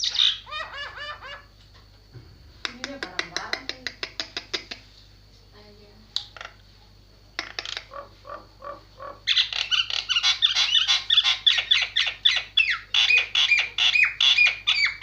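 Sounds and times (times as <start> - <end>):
starling harsh calls: 0.0 - 1.5, 7.4 - 15.0.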